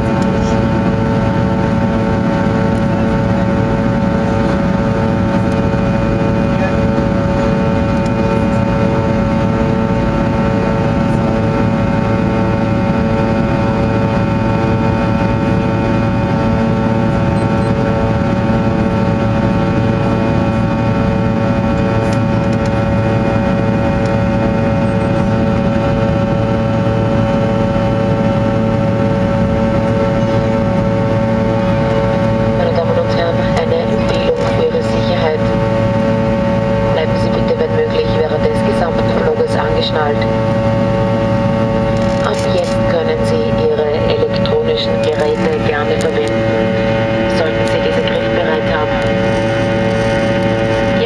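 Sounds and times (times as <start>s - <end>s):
jet engines droning in cabin: 0.0s - 51.0s
throbbing hum: 0.0s - 51.0s.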